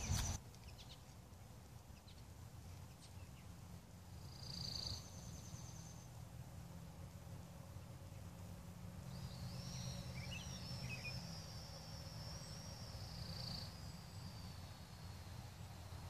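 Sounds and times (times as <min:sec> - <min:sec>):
bird chirps: 0:00.0 - 0:01.2, 0:04.2 - 0:06.2, 0:08.0 - 0:16.0
bird whistling: 0:09.0 - 0:15.2.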